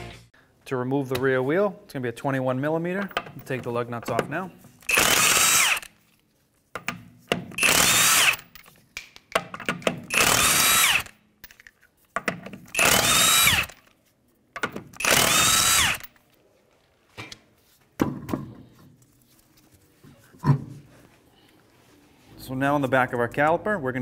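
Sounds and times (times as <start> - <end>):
impact gun spinning lug nuts: 4.8 - 5.9, 6.8 - 8.7, 9.6 - 11.2, 12.7 - 13.9, 14.6 - 16.1.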